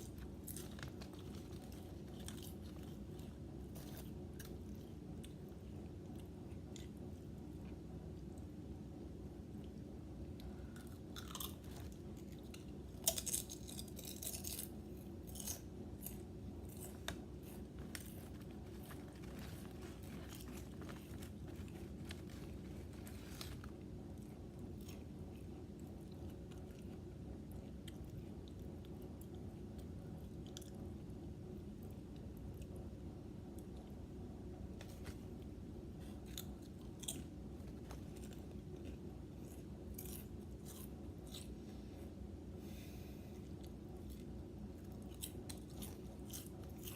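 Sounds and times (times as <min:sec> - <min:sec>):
potato chips crunching: 0:00.0 - 0:07.0, 0:10.7 - 0:29.4, 0:36.0 - 0:41.6, 0:43.6 - 0:46.9
low background hum: 0:00.0 - 0:46.9.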